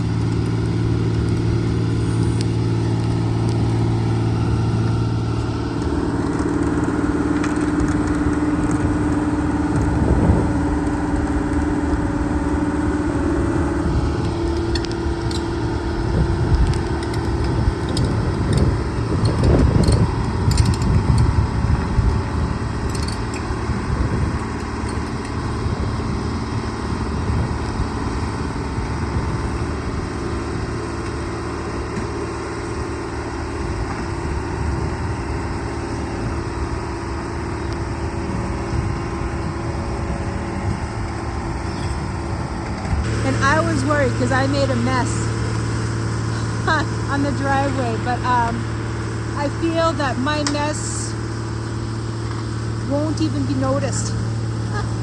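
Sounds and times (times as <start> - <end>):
excavator diesel engine running: 0.0 - 55.0
heavy rumble: 0.0 - 55.0.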